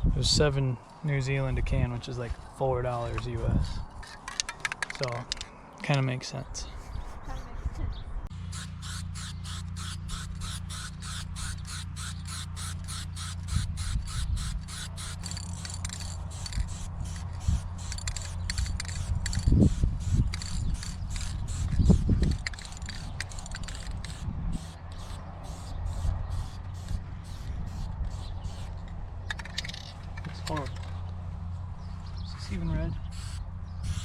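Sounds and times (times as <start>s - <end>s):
spray can mixing ball rattling: 8.6s - 28.7s.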